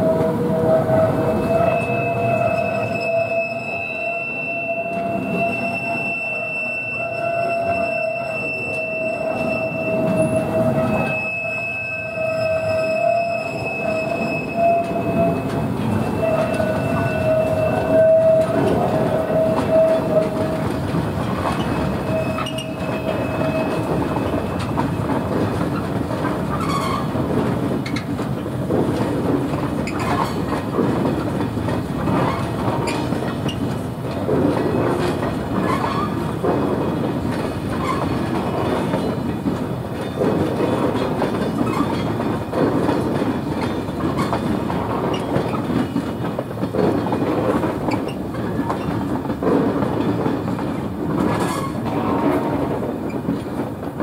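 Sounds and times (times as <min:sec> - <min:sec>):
high-pitched wheel squeal: 0:00.0 - 0:20.7, 0:21.5 - 0:24.6, 0:26.6 - 0:27.1
wheels clicking over rail joints: 0:12.6 - 0:54.0.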